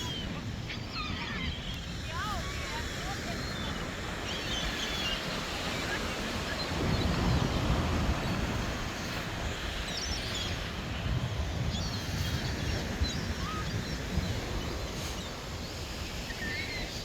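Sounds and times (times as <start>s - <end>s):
surf: 0.0s - 17.0s
wind: 0.0s - 17.0s.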